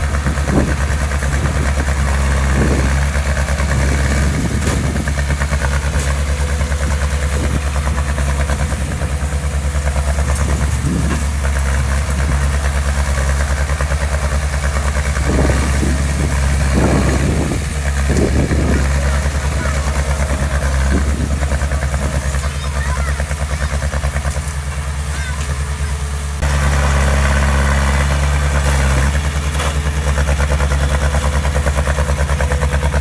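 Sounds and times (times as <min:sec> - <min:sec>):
heavy machinery diesel engine running: 0:00.0 - 0:33.0.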